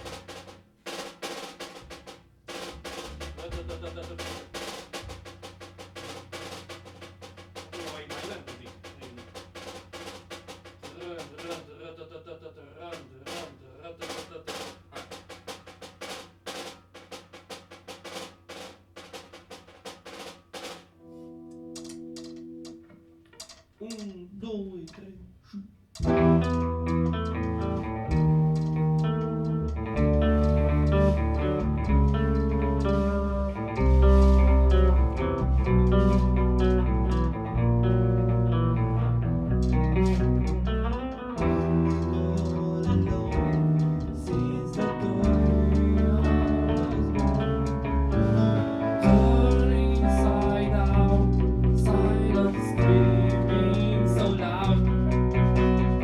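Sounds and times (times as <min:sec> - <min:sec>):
bass line: 0:02.6 - 0:04.6, 0:26.0 - 0:56.0
plucked guitar notes: 0:26.0 - 0:56.0.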